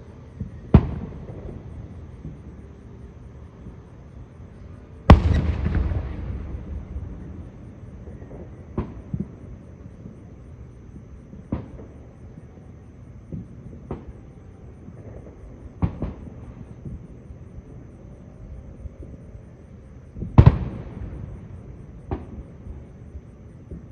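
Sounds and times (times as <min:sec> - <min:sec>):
firework shell rolling boom: 0:05.1 - 0:09.2
sharp firework bangs: 0:05.1 - 0:09.4.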